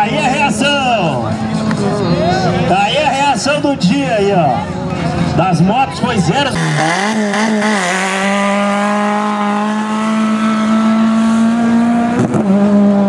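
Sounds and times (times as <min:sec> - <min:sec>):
racing engine at high revs: 0:06.5 - 0:13.0.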